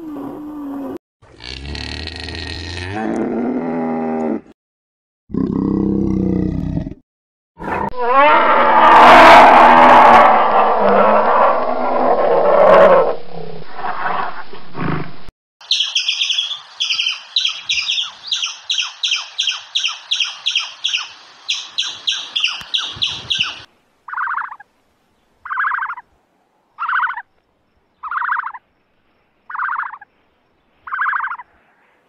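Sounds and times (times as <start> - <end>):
lower animal call: 7.9 - 13.4
squirrel chirping: 15.6 - 24.6, 25.5 - 26.0, 26.8 - 27.2, 28.0 - 28.6, 29.5 - 30.0, 30.9 - 31.4.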